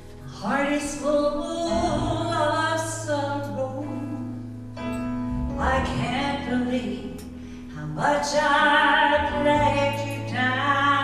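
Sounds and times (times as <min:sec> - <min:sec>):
instrumental accompaniment: 0:04.3 - 0:07.6.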